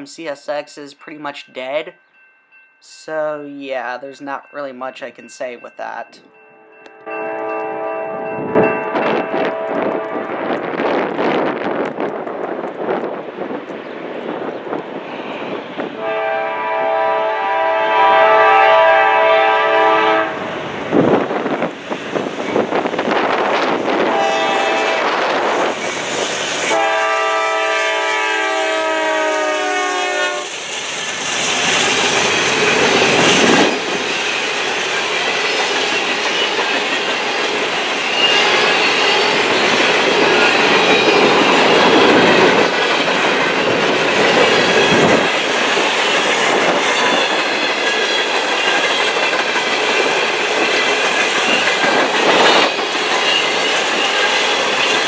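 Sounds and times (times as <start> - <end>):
train air horn chord: 6.5 - 10.3, 16.0 - 20.4, 24.1 - 25.2, 26.7 - 30.5
train wheels clacking over rail joints: 30.4 - 55.0.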